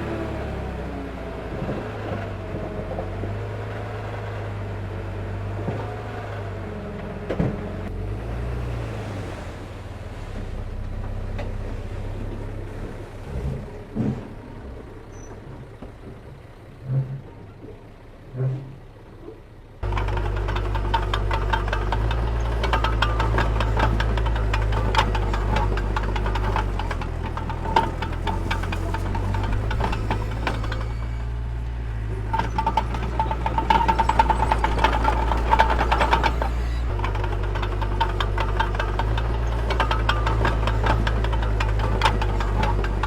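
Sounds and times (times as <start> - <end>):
diesel machinery engine running: 0.0 - 43.0.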